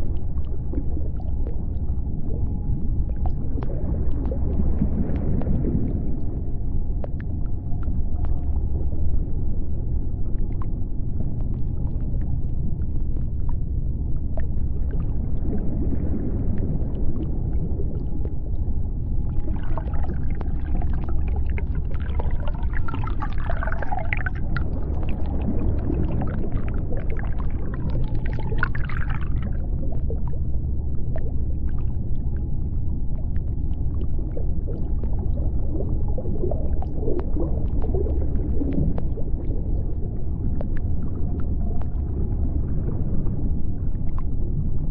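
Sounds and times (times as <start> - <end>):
faint underwater clicks: 0.0 - 44.9
underwater low rumble: 0.0 - 44.9.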